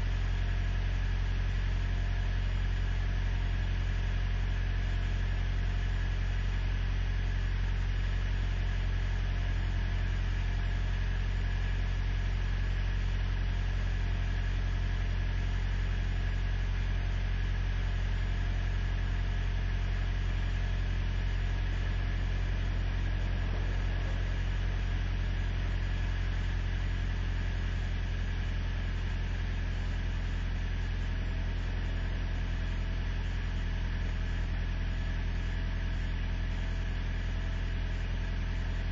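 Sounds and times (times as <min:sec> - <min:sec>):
truck engine idling: 0:19.6 - 0:38.9.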